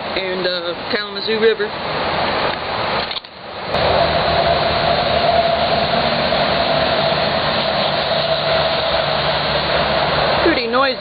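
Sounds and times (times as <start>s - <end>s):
freeway traffic roar: 0.0s - 11.0s.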